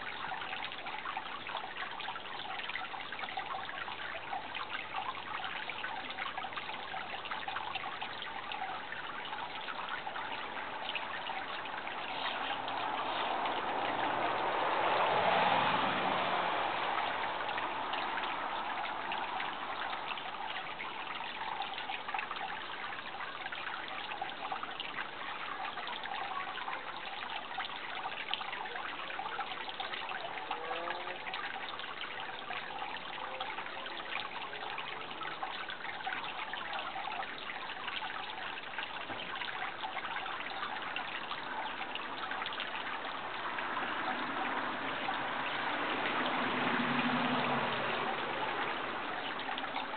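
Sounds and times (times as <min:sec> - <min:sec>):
stream trickling: 0:00.0 - 0:49.9.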